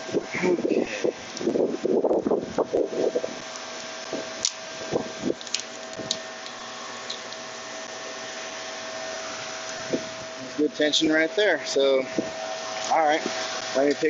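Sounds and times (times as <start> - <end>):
machinery whirring: 0.0 - 14.0.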